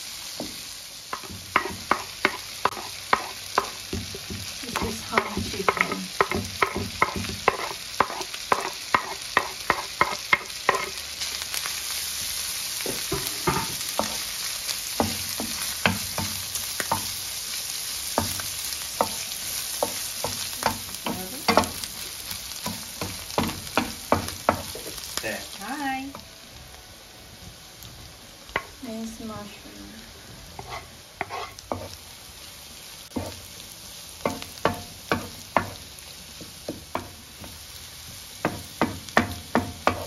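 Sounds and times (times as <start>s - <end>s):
chicken sizzling in a frying pan: 0.0s - 40.0s
wooden spoon scraping and knocking: 30.6s - 32.0s.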